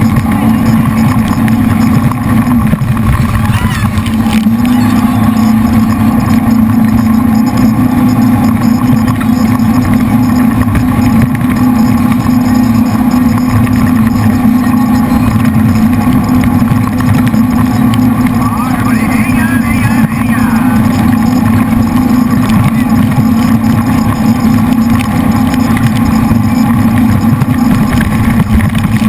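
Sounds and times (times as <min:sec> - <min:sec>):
boat engines droning: 0:00.0 - 0:29.0.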